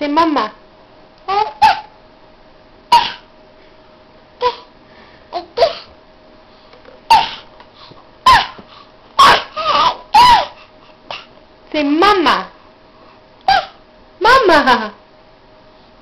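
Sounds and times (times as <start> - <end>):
baby babbling: 1.3 - 1.9, 4.4 - 4.7
baby squealing: 1.3 - 2.0, 7.1 - 7.4, 8.3 - 8.6, 9.2 - 11.3, 13.5 - 13.8.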